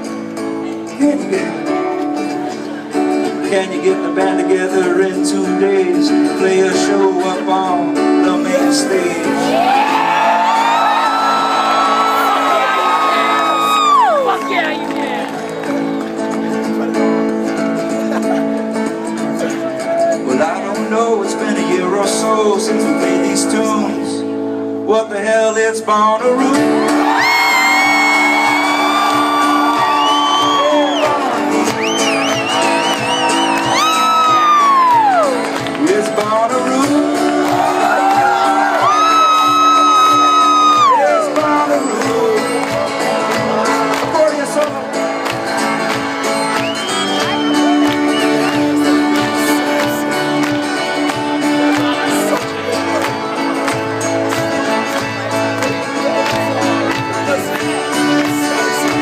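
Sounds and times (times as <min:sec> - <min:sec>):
live band playing: 0:00.0 - 0:59.0
strummed guitar chords: 0:00.0 - 0:59.0.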